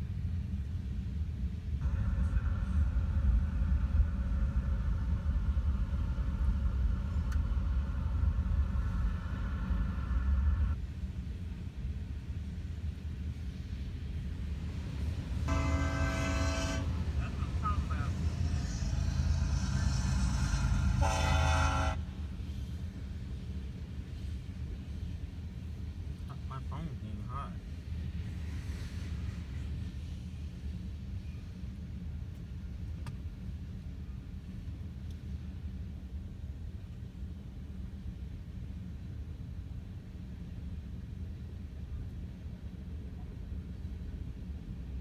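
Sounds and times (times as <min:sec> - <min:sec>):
passing train rumble: 0:00.2 - 0:45.0
train air horn blast: 0:01.8 - 0:10.8, 0:14.7 - 0:22.4.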